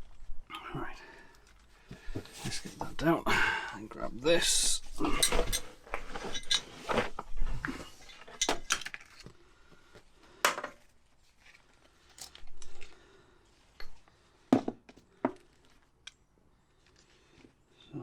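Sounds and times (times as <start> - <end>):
metal parts clinking: 5.0 - 7.0.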